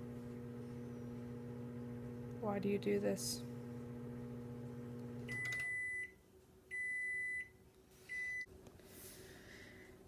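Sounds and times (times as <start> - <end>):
microwave oven humming: 0.0 - 8.6
microwave beeps: 5.1 - 8.5.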